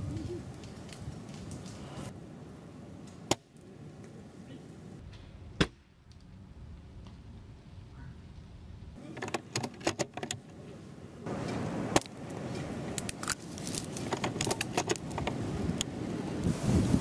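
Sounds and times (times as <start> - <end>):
wind buffeting microphone: 0.0 - 2.2, 13.6 - 17.0.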